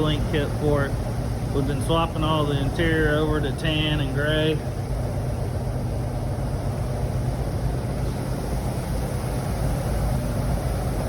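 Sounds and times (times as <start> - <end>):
faint hum: 0.0 - 11.0
low mechanical rumble: 0.0 - 11.0.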